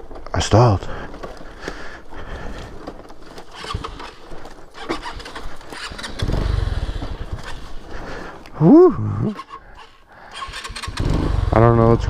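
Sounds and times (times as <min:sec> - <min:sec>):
engine running with low pulsing: 0:03.5 - 0:08.1, 0:09.0 - 0:12.0.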